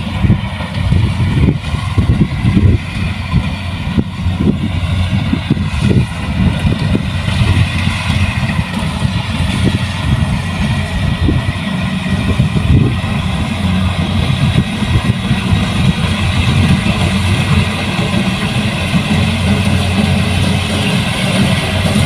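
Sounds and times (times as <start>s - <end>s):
combine harvester running: 0.0s - 22.0s.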